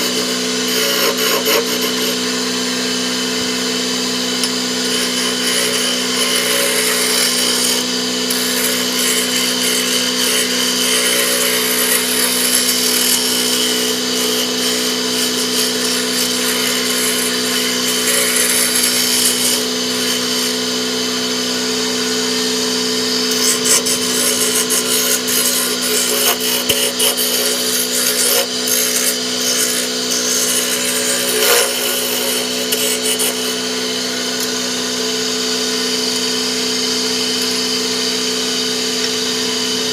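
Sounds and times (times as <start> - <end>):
turning tool scraping wood: 0.0 - 2.4, 4.3 - 20.7, 23.3 - 34.7
wood lathe motor hum: 0.0 - 39.9.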